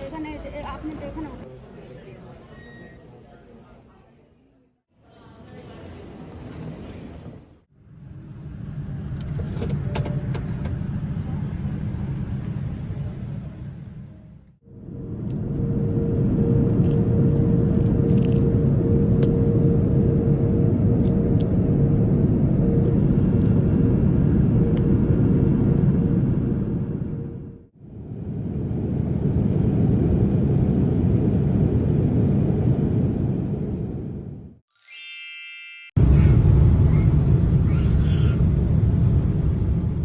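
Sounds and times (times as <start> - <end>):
steady hum: 10.2 - 34.5.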